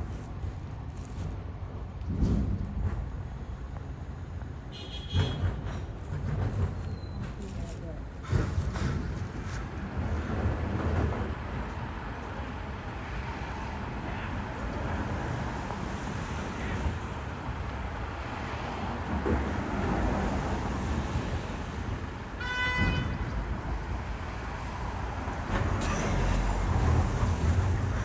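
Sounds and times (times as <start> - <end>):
vehicle traffic rumble: 0.0 - 28.0
short pitched tone: 25.8 - 26.8.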